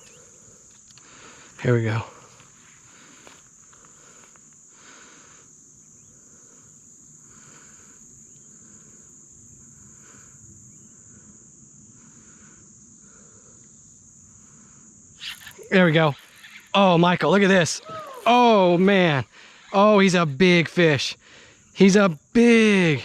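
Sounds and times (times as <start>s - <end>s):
high-pitched insect drone: 0.0s - 23.0s
insect chirps: 0.0s - 23.0s.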